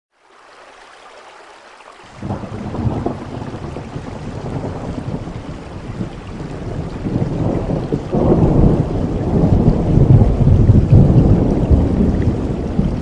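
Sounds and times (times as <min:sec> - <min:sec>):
rain hiss: 0:00.2 - 0:13.0
thunder rumbling: 0:02.2 - 0:13.0.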